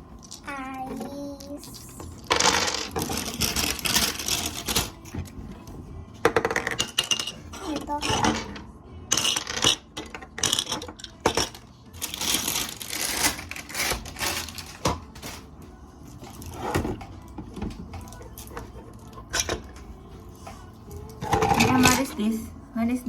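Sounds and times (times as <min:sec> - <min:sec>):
plastic toy pieces clattering: 0:00.3 - 0:05.0, 0:06.3 - 0:15.4.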